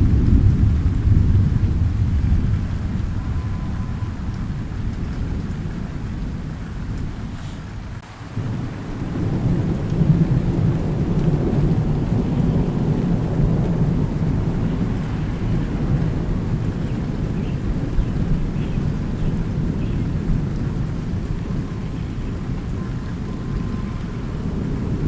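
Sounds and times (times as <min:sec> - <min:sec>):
steady rain: 0:00.0 - 0:25.0
thunder rumbling: 0:00.0 - 0:25.0.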